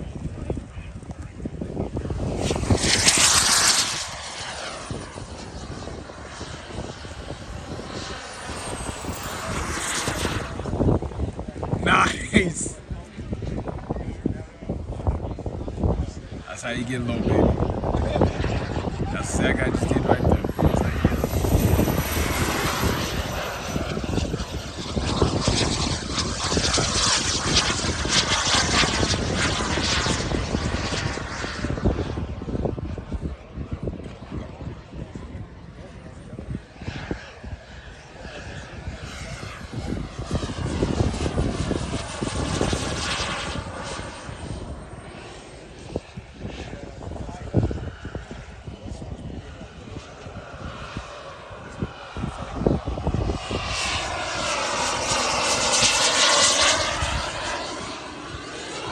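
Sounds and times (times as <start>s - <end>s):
model airplane flying past: 0.0s - 58.9s
faint high whine: 2.4s - 12.2s.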